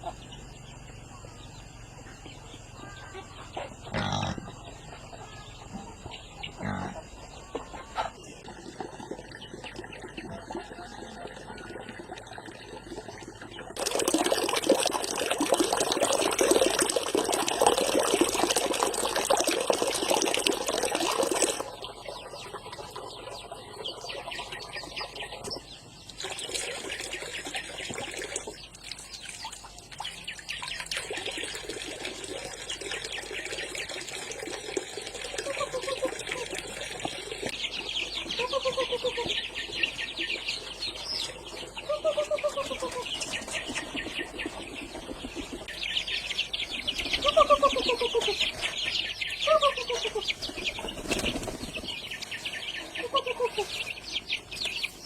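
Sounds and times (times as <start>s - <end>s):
chicken clucking: 0.0s - 9.5s, 21.1s - 26.1s, 37.4s - 55.0s
water running in a stream: 8.1s - 55.0s.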